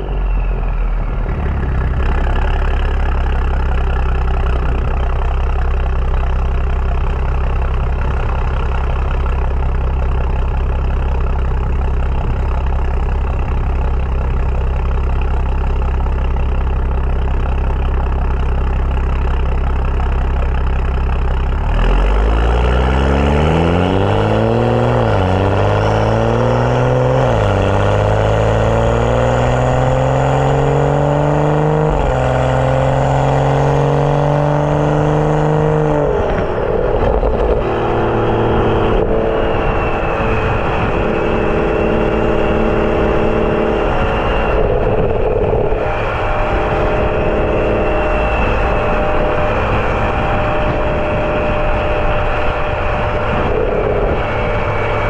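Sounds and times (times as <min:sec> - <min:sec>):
car engine revving and accelerating: 0:21.5 - 0:55.0.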